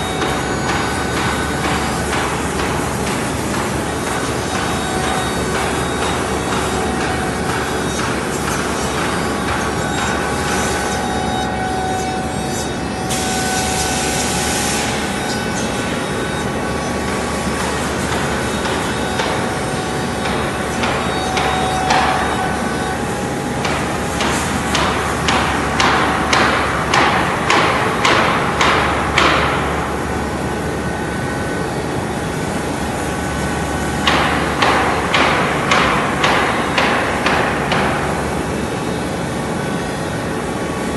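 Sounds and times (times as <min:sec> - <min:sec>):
stone cutting machine whine: 0:00.0 - 0:27.1.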